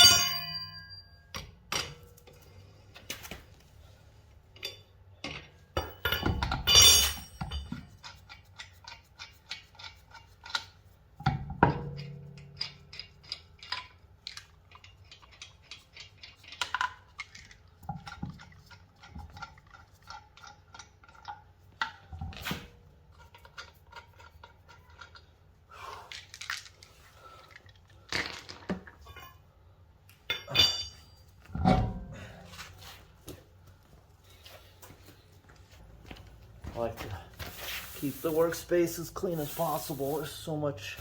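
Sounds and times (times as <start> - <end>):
ringing metal clank: 0.0 - 2.0, 5.8 - 7.8, 30.3 - 32.2
metal tools clinking: 0.0 - 2.4, 4.5 - 7.9, 28.9 - 31.4.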